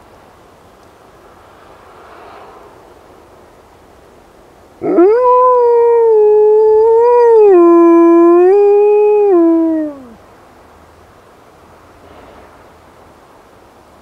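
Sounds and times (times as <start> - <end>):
wolf dog howling: 4.8 - 10.2.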